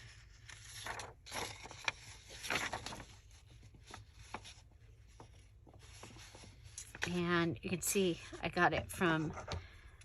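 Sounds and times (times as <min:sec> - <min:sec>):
paper rustling: 0:00.0 - 0:07.3.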